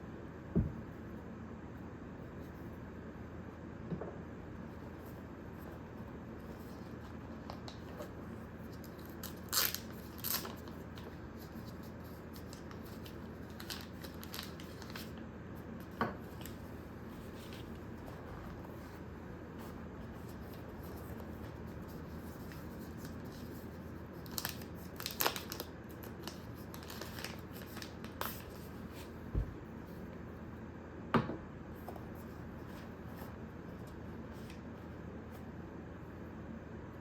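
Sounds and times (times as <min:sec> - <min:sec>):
packaging rustling: 0:08.7 - 0:15.2, 0:24.2 - 0:29.1.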